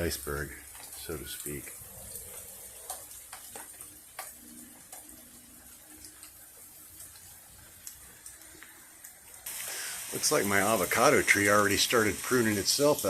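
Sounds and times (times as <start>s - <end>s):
faint steady hiss: 0.0s - 13.0s
raindrops tapping: 0.0s - 13.0s.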